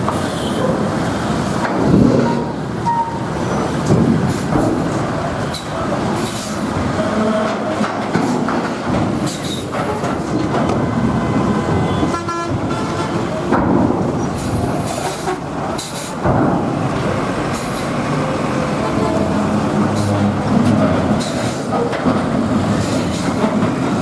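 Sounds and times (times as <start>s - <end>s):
heavy traffic rumbling: 0.0s - 24.0s.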